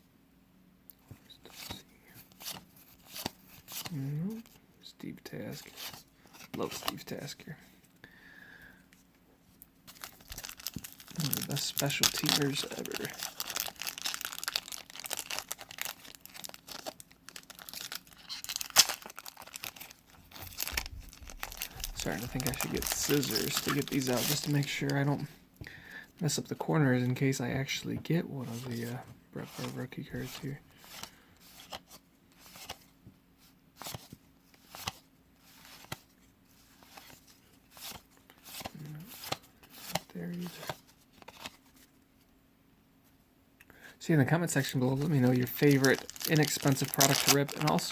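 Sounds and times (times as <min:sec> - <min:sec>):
cards clicking and rustling: 0:05.7 - 0:07.1, 0:09.9 - 0:25.3, 0:44.5 - 0:47.9
paper wrapper tearing and crinkling: 0:09.9 - 0:25.2, 0:44.5 - 0:47.9.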